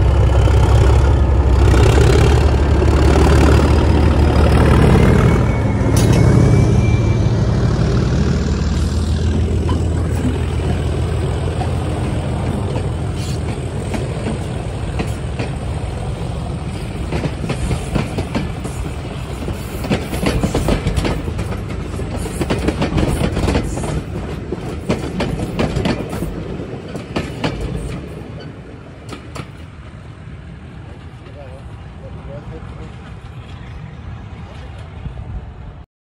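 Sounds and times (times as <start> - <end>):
passenger train passing: 0.0 - 35.8
wheels clicking over rail joints: 9.6 - 29.8.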